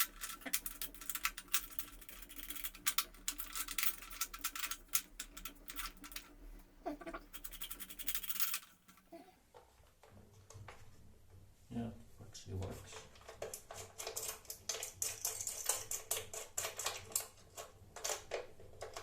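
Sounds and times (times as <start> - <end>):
scratching and clicking of parts: 0.0 - 9.2.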